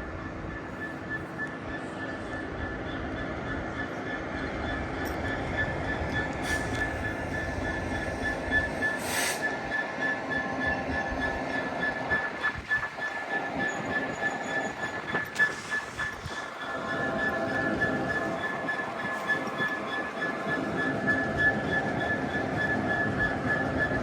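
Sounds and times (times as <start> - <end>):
train rumbling: 0.0 - 24.0
short hiss: 9.0 - 9.5.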